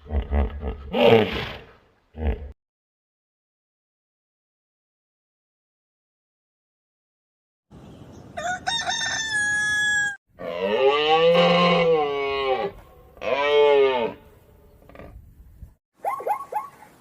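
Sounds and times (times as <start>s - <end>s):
animal calling: 16.0s - 17.0s.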